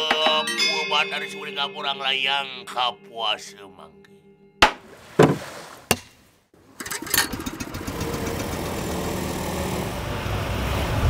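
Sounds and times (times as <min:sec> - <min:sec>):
sharp knocks: 0:04.6 - 0:06.2
engine running: 0:06.8 - 0:11.0.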